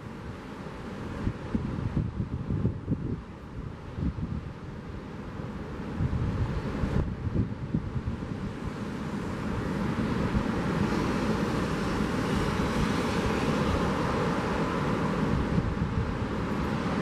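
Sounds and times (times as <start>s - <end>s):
ocean surf: 0.0s - 17.0s
wind: 0.0s - 17.0s.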